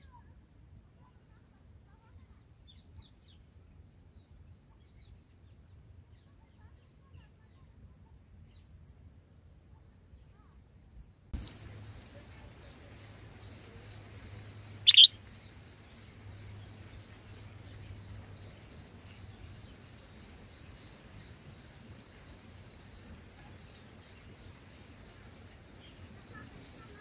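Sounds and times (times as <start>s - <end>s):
faint high bird chips: 11.4s - 27.0s
loud sharp bird call: 13.2s - 16.5s.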